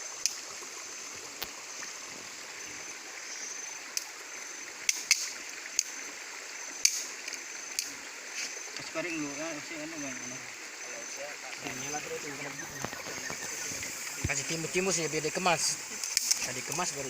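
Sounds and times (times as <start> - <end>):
stream running: 0.0 - 17.0.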